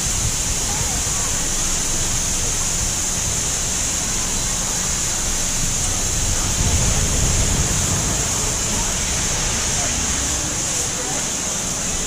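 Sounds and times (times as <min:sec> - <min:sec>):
wind on microphone: 0:00.0 - 0:01.3, 0:05.2 - 0:12.0
running water rushing: 0:00.0 - 0:12.0
faint distant voices: 0:00.3 - 0:12.0.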